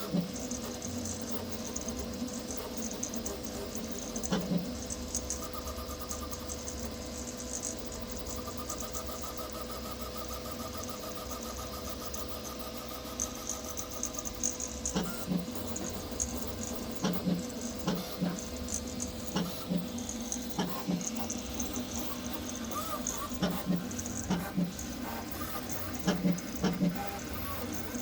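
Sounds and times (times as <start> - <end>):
stepper motors chirping: 0.0 - 28.0
steady fan hum: 11.1 - 28.0.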